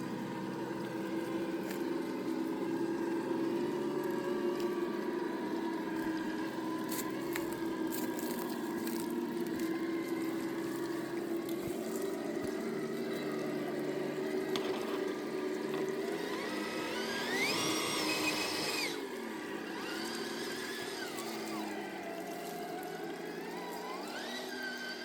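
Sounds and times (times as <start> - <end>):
rc car electric motor whining: 5.4 - 25.0.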